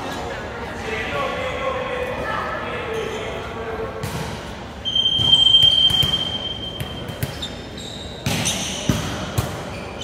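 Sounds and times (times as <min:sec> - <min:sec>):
ball bouncing on indoor court: 0:03.9 - 0:10.0.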